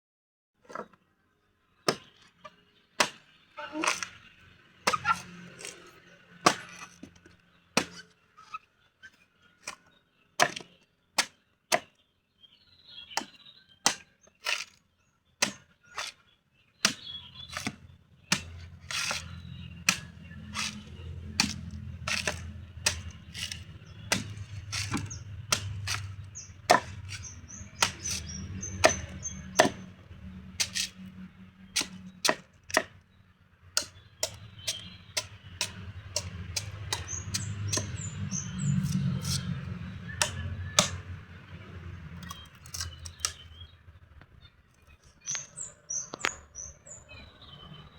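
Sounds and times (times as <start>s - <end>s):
chopping strikes on coconut: 1.9s - 2.1s, 3.0s - 4.1s, 4.9s - 5.4s, 6.4s - 6.9s, 7.8s - 8.0s, 10.4s - 12.0s, 13.2s - 14.6s, 15.4s - 16.2s, 16.8s - 29.9s, 31.8s - 33.0s, 33.8s - 41.1s.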